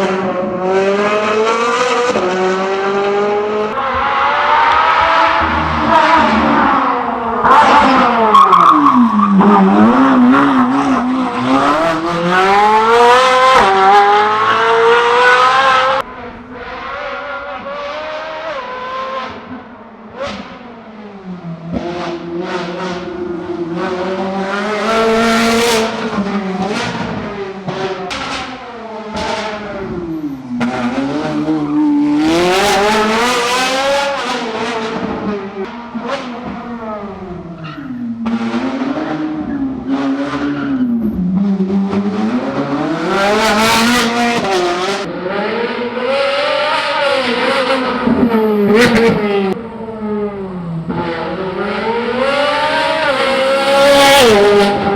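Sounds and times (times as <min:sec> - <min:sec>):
sports car engine revving: 0:00.0 - 0:20.6.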